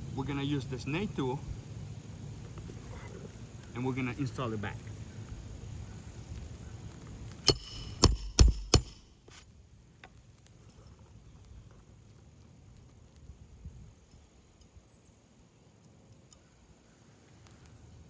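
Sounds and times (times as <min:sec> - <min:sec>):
hammer blows on nails: 0:07.4 - 0:09.4.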